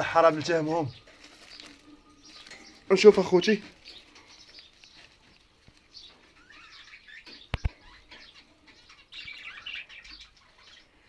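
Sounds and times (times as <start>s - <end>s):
birds fluttering wings: 0.0s - 6.1s
birds chirping: 0.0s - 11.0s.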